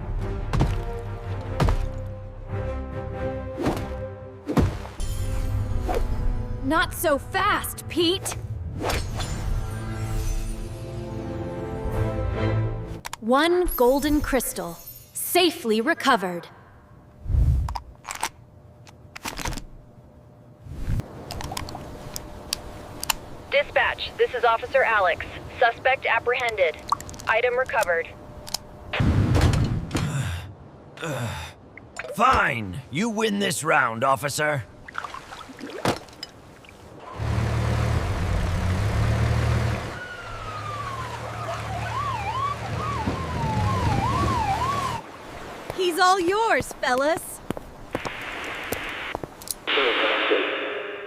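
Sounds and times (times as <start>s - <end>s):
engine hum: 36.0s - 45.2s
police siren: 39.8s - 45.0s.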